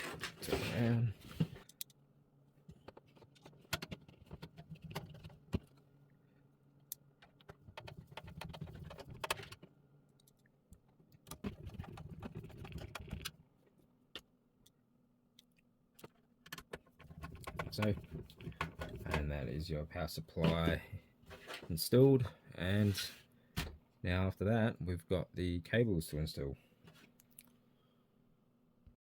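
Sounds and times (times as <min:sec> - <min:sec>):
rubbing handling noise: 0:20.3 - 0:21.8.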